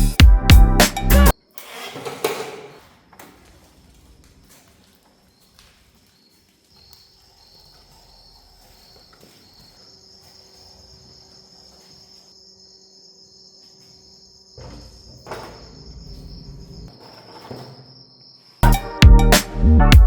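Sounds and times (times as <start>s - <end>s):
rustling noise: 2.5s - 12.4s
insects chirping: 2.7s - 18.6s.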